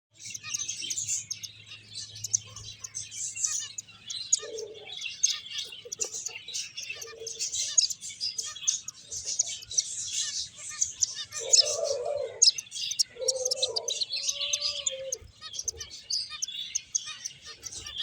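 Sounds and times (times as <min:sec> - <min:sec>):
finches chirping: 0:00.1 - 0:18.0.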